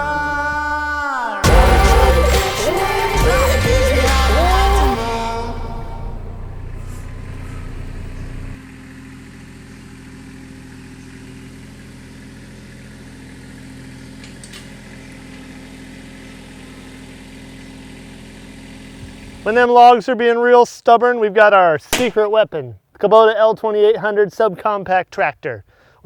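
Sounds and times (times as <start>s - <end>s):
background music: 0.0s - 6.9s
tractor diesel engine idling: 1.4s - 8.6s.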